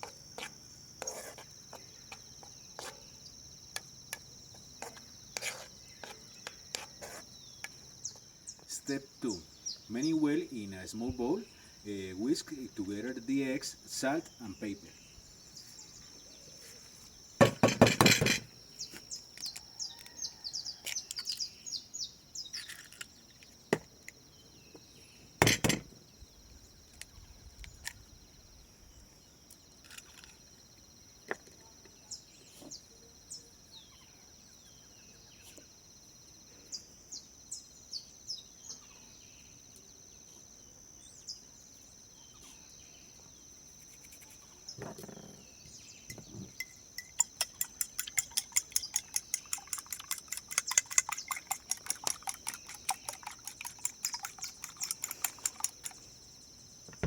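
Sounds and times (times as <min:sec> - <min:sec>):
crickets chirping: 0:00.0 - 0:57.0
bird chirps: 0:44.1 - 0:56.1.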